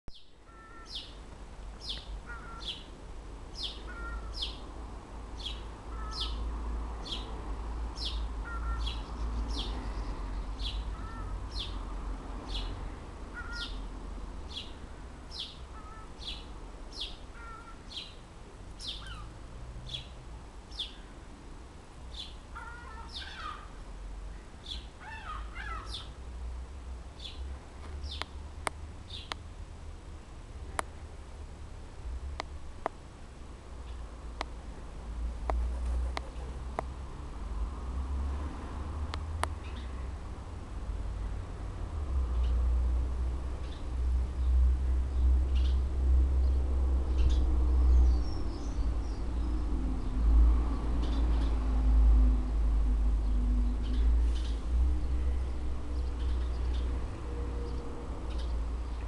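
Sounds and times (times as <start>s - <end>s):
animal squeaking: 0.5s - 1.0s, 2.3s - 2.8s, 3.9s - 4.4s, 8.5s - 9.0s, 13.4s - 13.7s
low wind-like rumble: 39.1s - 59.0s.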